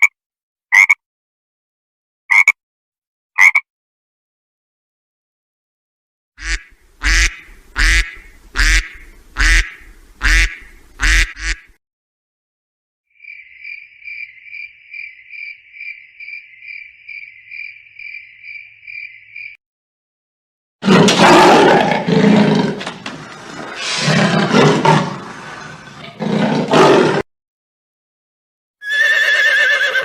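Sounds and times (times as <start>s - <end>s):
duck quacking: 6.4s - 11.8s
cricket chirping trill: 13.1s - 19.6s.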